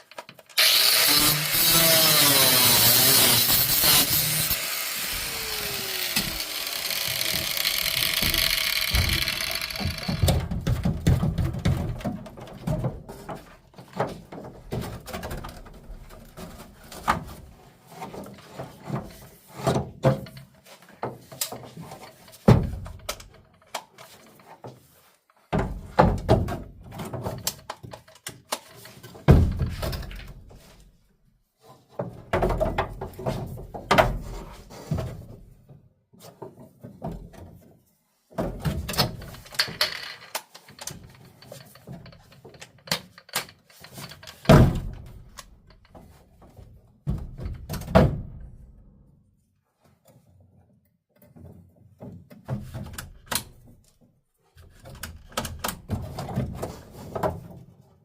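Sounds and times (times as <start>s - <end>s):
knocks and clatter: 6.0s - 24.5s.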